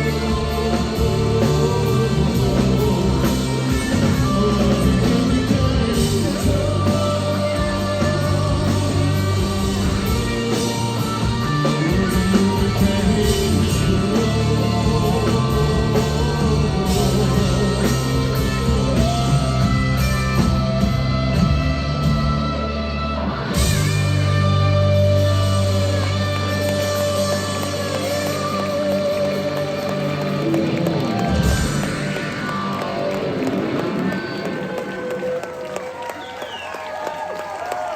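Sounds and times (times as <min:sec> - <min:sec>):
rock band playing live: 0:00.0 - 0:37.9.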